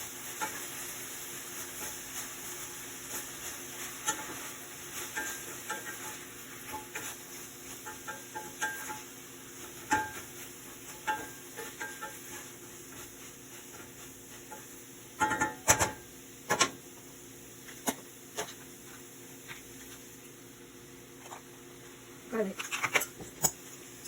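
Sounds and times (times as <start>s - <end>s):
food frying faintly: 0.0s - 24.0s
metal utensil clinking on frying pan: 5.0s - 7.1s, 7.8s - 9.1s, 9.8s - 10.3s, 10.9s - 12.4s, 14.5s - 16.0s.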